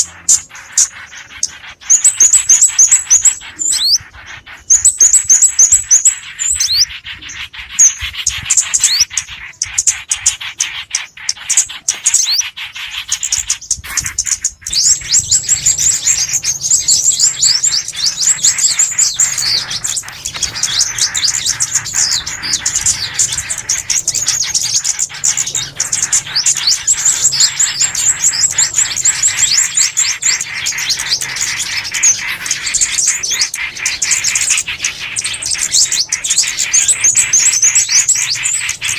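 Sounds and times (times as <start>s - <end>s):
songbirds chirping and twittering: 0.0s - 38.9s.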